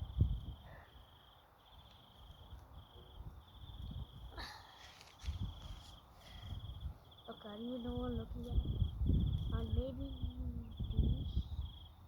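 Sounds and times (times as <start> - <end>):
insect chirping in trills: 0.0 - 12.0
handling rustle: 4.6 - 6.6.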